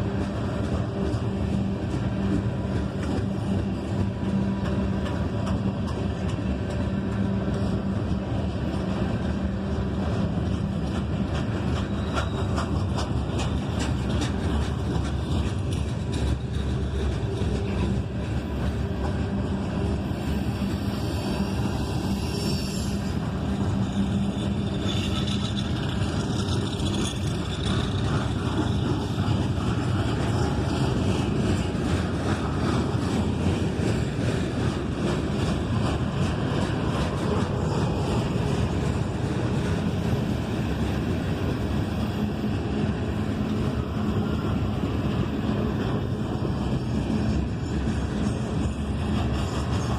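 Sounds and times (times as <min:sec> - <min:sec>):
train wheels rumbling on rail: 0:00.0 - 0:49.9
high wheel squeal: 0:11.7 - 0:12.8, 0:20.2 - 0:28.0.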